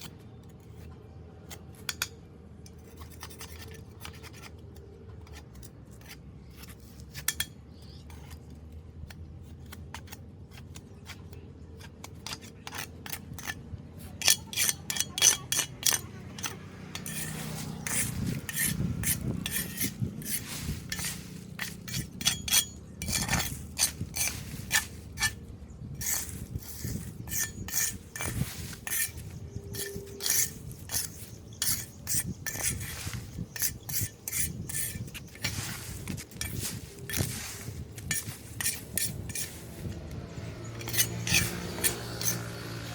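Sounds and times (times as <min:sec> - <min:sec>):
metal tool scraping drain grate: 0:14.2 - 0:42.9.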